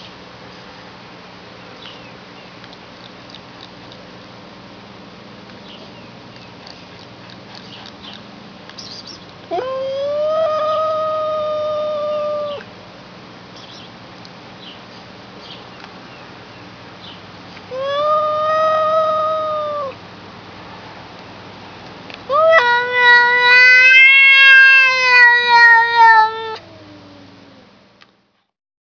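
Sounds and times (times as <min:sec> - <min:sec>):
cat meowing long: 0:09.5 - 0:12.7, 0:17.7 - 0:20.0, 0:22.3 - 0:27.0.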